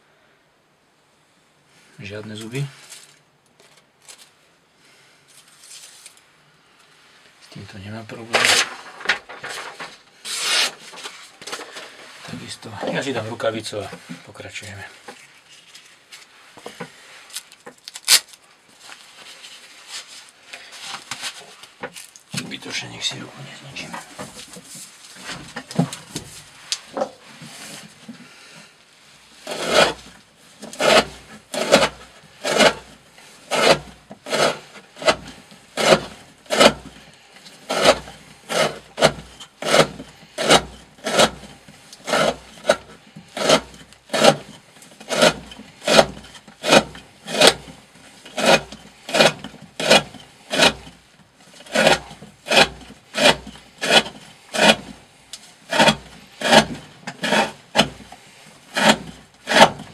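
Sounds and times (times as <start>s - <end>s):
handling sounds: 2.3s - 4.4s, 8.2s - 23.0s
knife slicing through rope: 10.3s - 10.8s, 29.4s - 32.9s, 33.5s - 50.9s, 51.7s - 55.0s, 55.7s - 58.1s, 58.7s - 59.9s.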